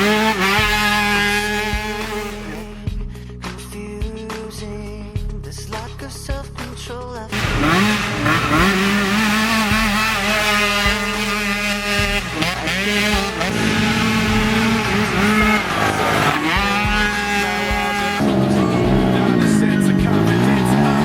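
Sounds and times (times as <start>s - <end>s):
atv engines revving hard: 0.0s - 2.9s, 7.3s - 21.0s.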